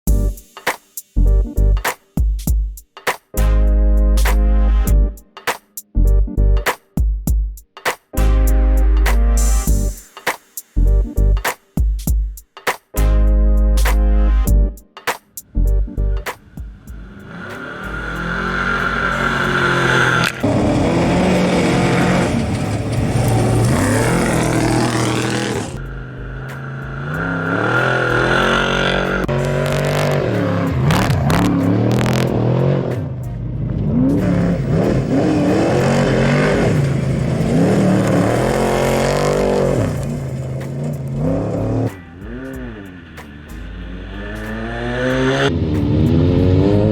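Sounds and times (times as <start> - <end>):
race vehicle engines revving: 16.4 - 46.9.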